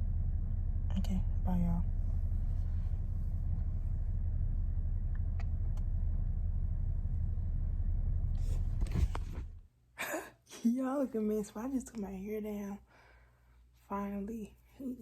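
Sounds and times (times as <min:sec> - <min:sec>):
car interior engine rumble: 0:00.0 - 0:09.7.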